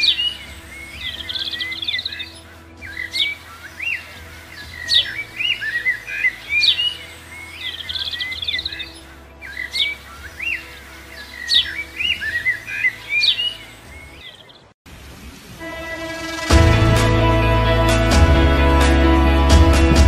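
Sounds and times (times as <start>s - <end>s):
birds singing: 0.0s - 14.8s.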